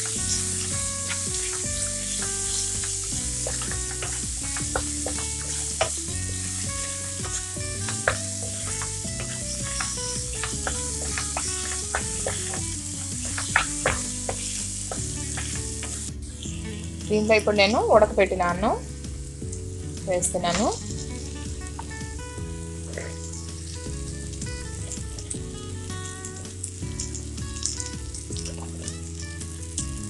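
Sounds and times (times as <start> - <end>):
wooden spatula scraping a pan: 0.0 - 16.8
background music melody: 0.0 - 30.0
food sizzling in hot oil: 0.0 - 30.0.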